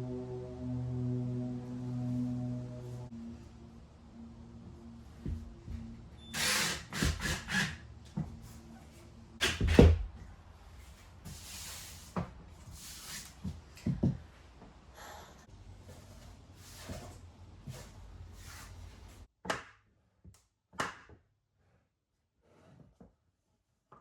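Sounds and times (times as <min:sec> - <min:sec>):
power tool bursts: 0:06.3 - 0:07.8.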